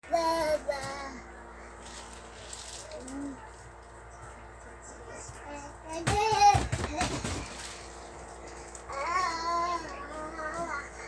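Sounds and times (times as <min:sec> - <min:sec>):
toddler babbling: 0:09.0 - 0:11.0.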